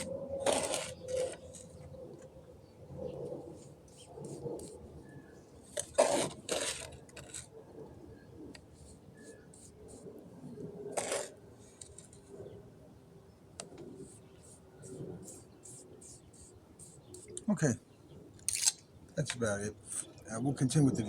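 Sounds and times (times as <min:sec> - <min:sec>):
tool scraping wet concrete: 0:00.0 - 0:01.7, 0:05.8 - 0:07.5, 0:10.9 - 0:12.2.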